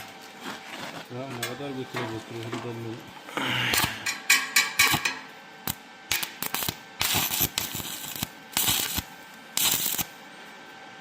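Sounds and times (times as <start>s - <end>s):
welding arc crackling and hissing: 3.6s - 10.2s.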